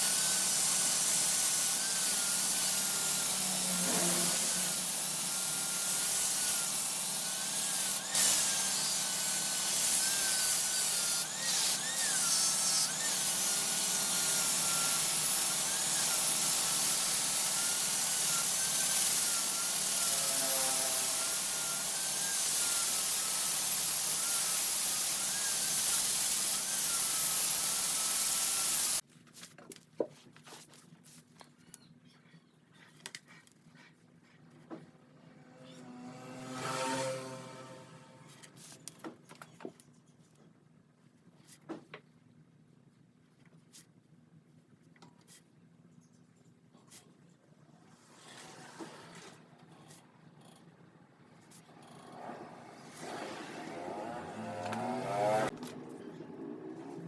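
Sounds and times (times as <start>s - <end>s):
lathe hum and whine: 0.0s - 29.0s
lathe tool scraping wood: 0.0s - 29.0s, 51.6s - 55.5s.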